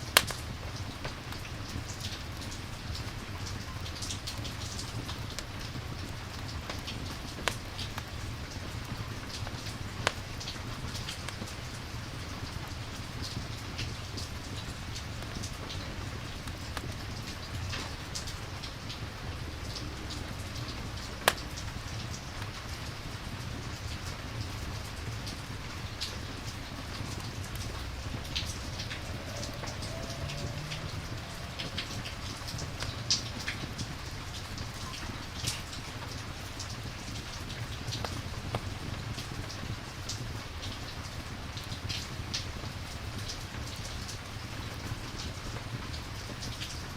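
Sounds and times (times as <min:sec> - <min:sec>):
steady rain: 0:00.0 - 0:46.9
sharp ticks and pops: 0:00.1 - 0:01.2, 0:09.4 - 0:10.3, 0:21.0 - 0:22.1.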